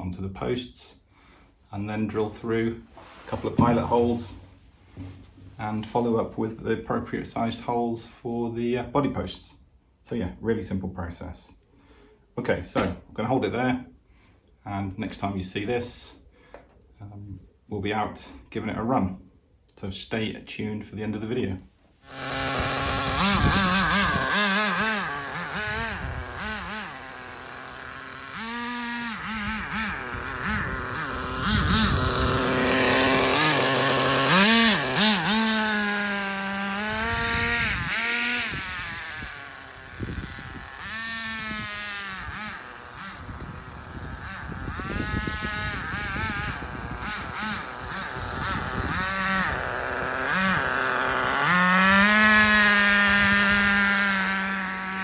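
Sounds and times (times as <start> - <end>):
model truck engine revving: 22.0 - 55.0.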